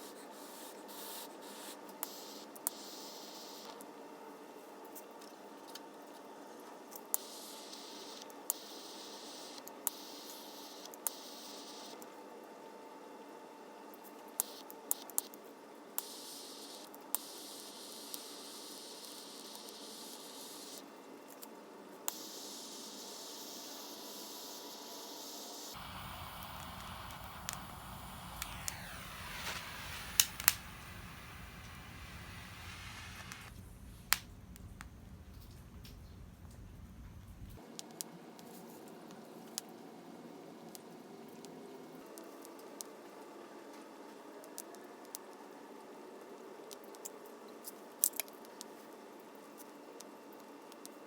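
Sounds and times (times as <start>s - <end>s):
steady hiss: 22.1s - 36.0s
campfire crackling: 25.8s - 34.8s
sharp clicks and pops: 25.8s - 36.6s.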